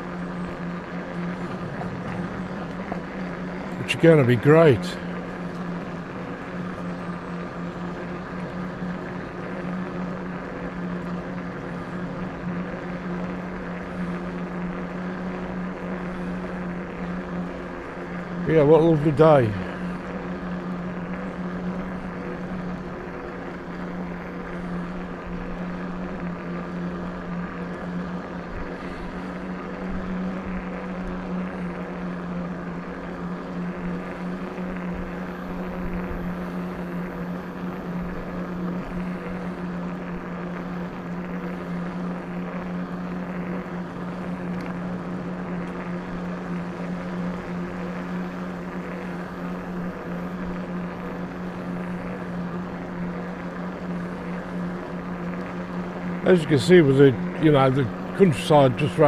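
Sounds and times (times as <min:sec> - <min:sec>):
rough rolling noise: 0:00.0 - 0:10.7
electric bike motor whining: 0:00.0 - 0:59.0.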